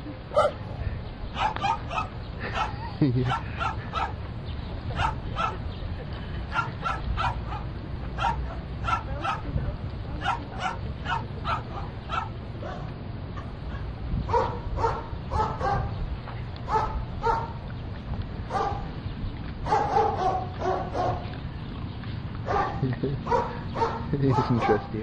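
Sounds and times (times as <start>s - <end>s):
steady low rumble: 0.0s - 25.0s
dog barking in high yips: 1.4s - 2.7s, 5.0s - 5.6s, 6.5s - 9.4s, 10.2s - 12.9s, 14.3s - 15.9s, 19.7s - 21.2s.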